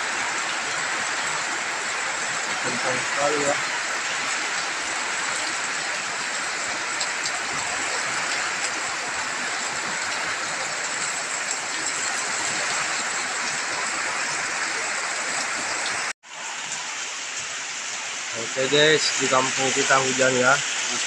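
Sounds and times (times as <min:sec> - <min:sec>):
heavy rain in strong wind: 0:00.0 - 0:21.0.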